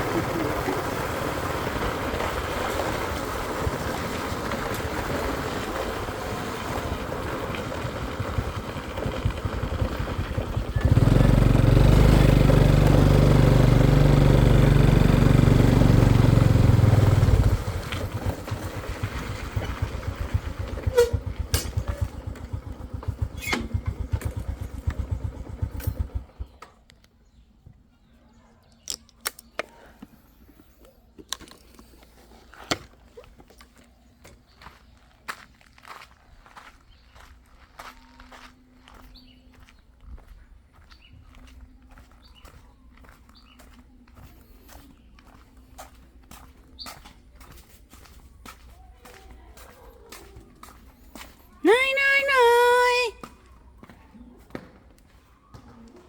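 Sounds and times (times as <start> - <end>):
motorcycle engine running: 0.0 - 26.8.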